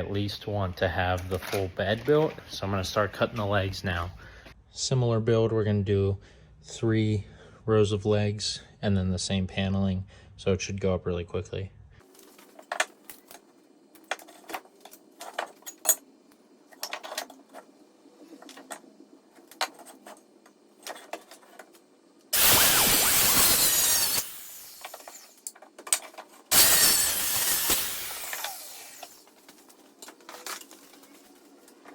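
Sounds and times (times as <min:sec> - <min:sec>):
wood being handled: 0:12.1 - 0:16.0, 0:16.7 - 0:21.9, 0:28.2 - 0:31.9
power saw cutting wood: 0:22.3 - 0:25.5, 0:26.5 - 0:29.3.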